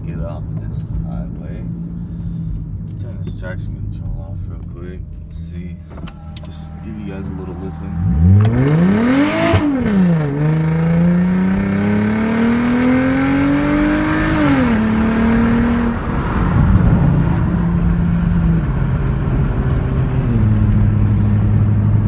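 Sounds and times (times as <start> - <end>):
car engine accelerating hard: 5.9 - 22.0.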